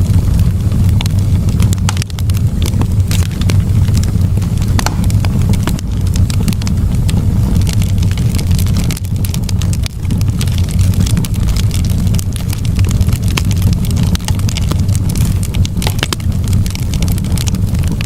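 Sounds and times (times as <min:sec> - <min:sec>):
campfire logs crackling and popping: 0:00.0 - 0:18.0
low fire rumble: 0:00.0 - 0:18.0.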